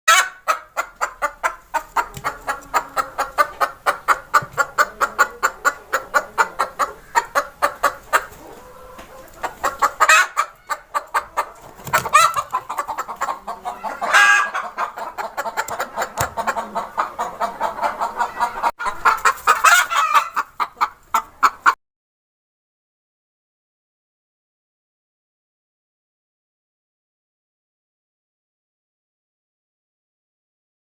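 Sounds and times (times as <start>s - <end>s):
hen clucking: 0.1s - 21.8s.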